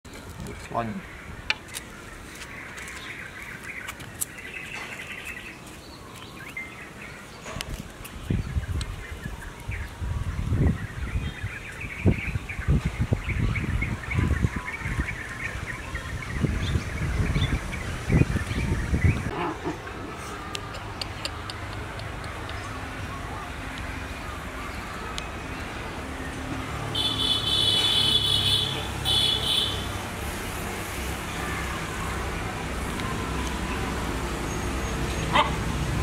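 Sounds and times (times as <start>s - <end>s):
small birds chirping: 0.1s - 26.4s
low rumbling gusts: 8.2s - 23.2s.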